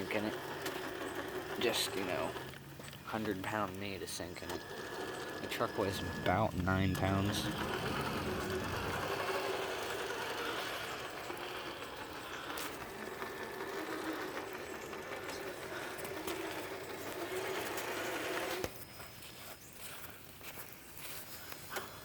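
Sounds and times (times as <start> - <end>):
electric motor whining: 3.6 - 18.8.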